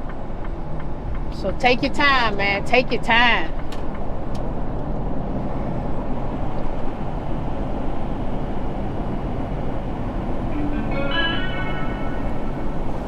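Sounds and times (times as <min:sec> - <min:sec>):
road noise: 0:00.0 - 0:13.0
truck engine rumble: 0:09.2 - 0:13.0.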